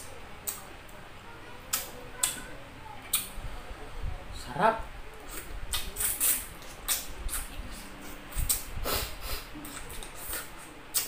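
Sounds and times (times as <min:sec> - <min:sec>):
wet chewing and lip smacking: 0:03.1 - 0:03.3, 0:05.2 - 0:08.7, 0:09.6 - 0:11.0.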